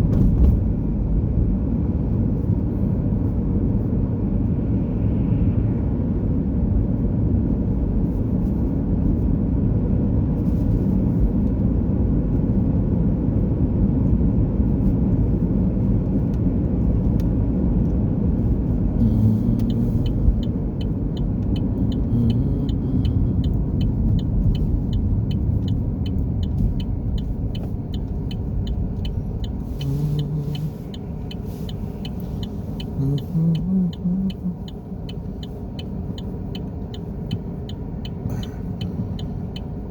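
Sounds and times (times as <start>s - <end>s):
car engine and road noise: 0.0s - 39.9s
regular high ticking: 19.0s - 39.9s.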